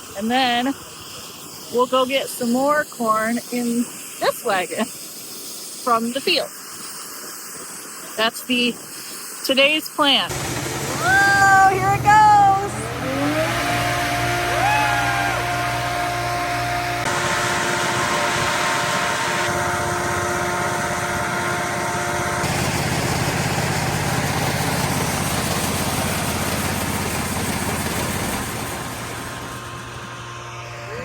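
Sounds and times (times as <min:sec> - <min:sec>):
farm machinery running: 0:10.3 - 0:31.0.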